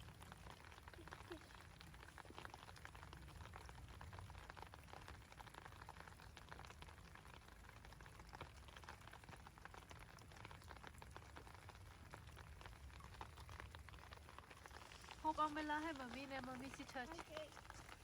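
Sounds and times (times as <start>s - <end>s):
light rain falling: 0.0s - 18.0s.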